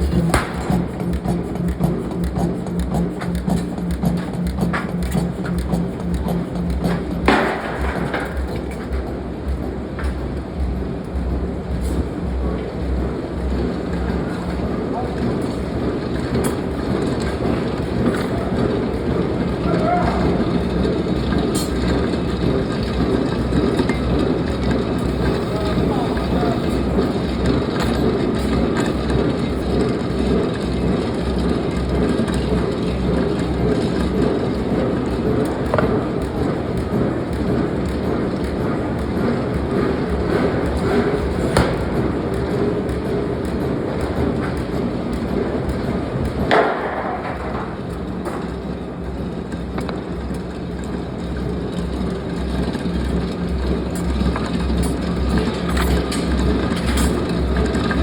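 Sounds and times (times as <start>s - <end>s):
loud metallic clank: 0.0s - 3.0s
industrial machinery rumble: 0.0s - 58.0s.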